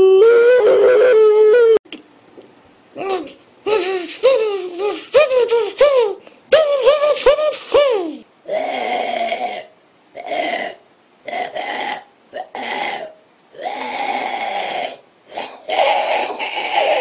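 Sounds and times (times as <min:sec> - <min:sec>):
man making burp-like noises: 0:08.5 - 0:17.0.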